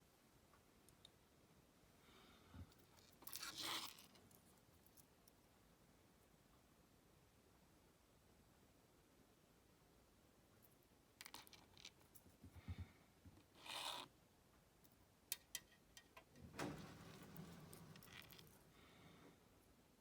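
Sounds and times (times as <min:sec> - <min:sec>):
rustling scrape: 0:16.4 - 0:18.7.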